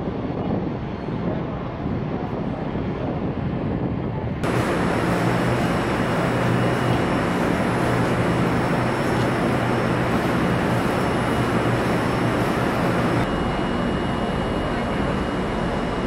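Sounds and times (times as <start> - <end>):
train idling rumble and hiss: 4.4 - 16.0.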